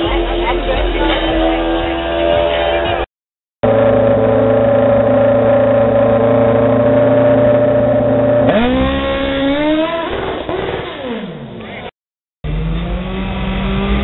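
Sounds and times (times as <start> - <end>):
motorcycle engine revving and accelerating: 0.0 - 14.0.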